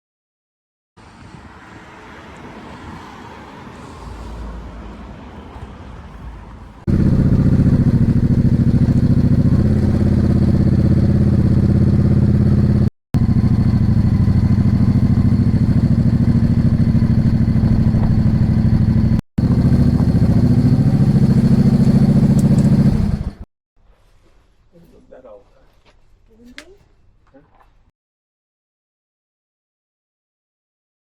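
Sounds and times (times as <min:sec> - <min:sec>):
motorcycle engine running: 0:06.9 - 0:23.5.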